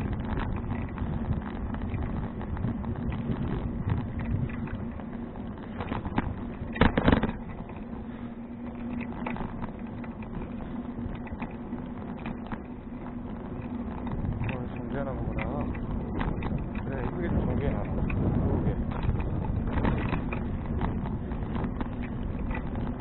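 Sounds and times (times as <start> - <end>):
bicycle frame rattling: 0.0 - 23.0.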